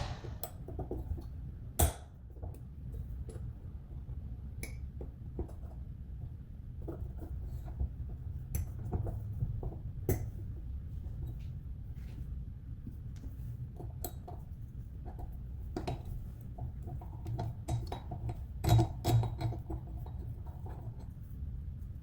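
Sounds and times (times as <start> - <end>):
low steady hum: 0.0 - 1.0.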